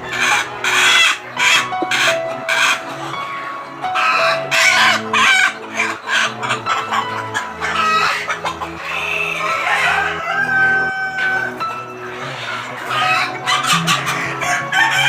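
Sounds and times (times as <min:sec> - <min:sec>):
background music low notes: 0:00.0 - 0:15.0
chickens clucking: 0:00.0 - 0:15.0
rooster crowing: 0:09.0 - 0:11.6.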